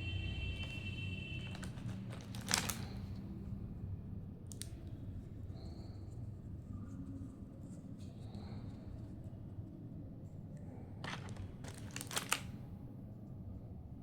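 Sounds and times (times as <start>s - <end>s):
plastic toys and packaging clicking: 1.4s - 3.3s, 4.5s - 4.9s, 11.0s - 12.7s.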